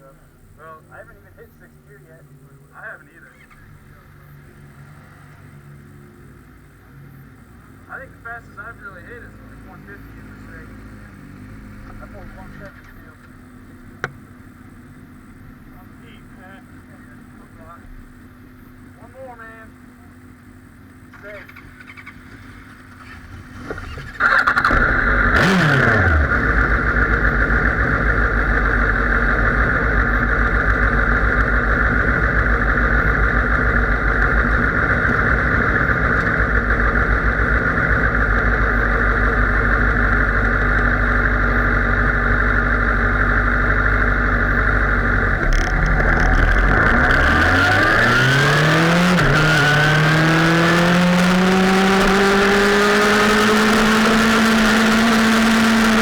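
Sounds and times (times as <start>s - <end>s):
motorcycle engine revving: 0.0s - 19.1s, 19.8s - 56.0s.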